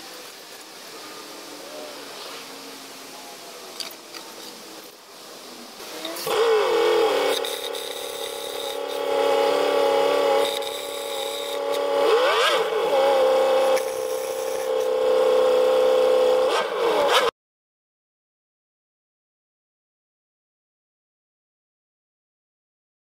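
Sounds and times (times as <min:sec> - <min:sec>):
power tool motor whining: 0:05.8 - 0:17.3.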